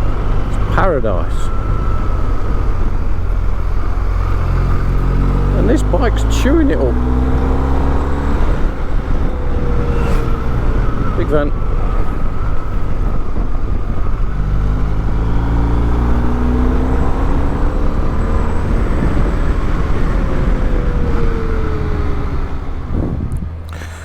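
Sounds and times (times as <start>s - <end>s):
motorcycle engine running: 0.0s - 23.4s
wind rush: 7.0s - 18.0s, 18.6s - 23.7s.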